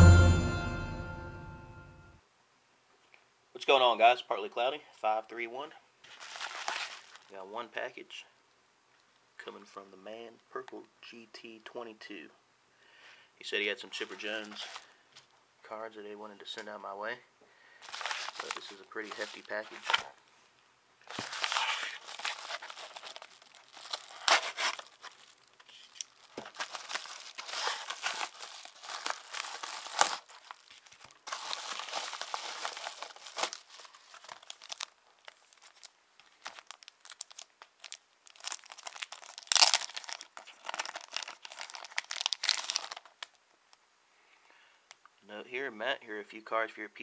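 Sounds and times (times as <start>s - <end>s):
paper crinkling and tearing: 6.1s - 7.3s, 14.0s - 14.9s, 17.8s - 20.1s, 21.0s - 43.4s.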